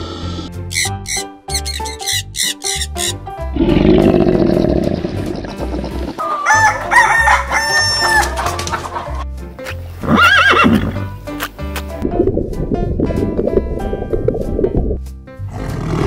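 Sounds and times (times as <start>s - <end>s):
low rough roar: 3.5s - 6.2s
background music with steady beat: 5.2s - 16.0s
rooster crowing: 6.2s - 8.4s.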